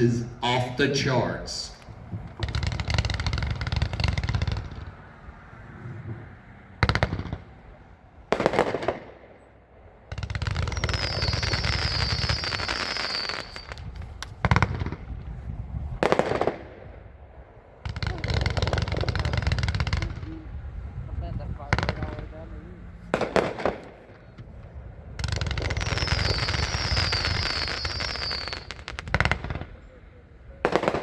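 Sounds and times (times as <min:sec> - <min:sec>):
firework bangs: 0:02.3 - 0:05.0, 0:06.8 - 0:15.3, 0:15.9 - 0:17.1, 0:23.1 - 0:29.8, 0:30.6 - 0:31.0
fireworks crackling: 0:10.1 - 0:15.2, 0:25.2 - 0:29.8
faint high whistle: 0:10.7 - 0:13.8, 0:25.9 - 0:28.7.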